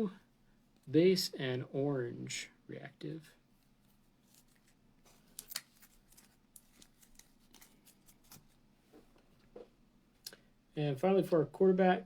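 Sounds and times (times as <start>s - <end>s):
trading cards shuffled: 3.8s - 9.1s.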